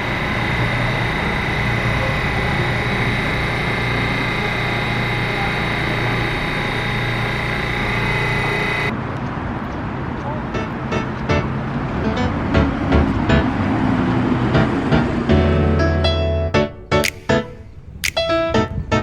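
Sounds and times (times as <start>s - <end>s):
machine running with whine: 0.0s - 8.9s.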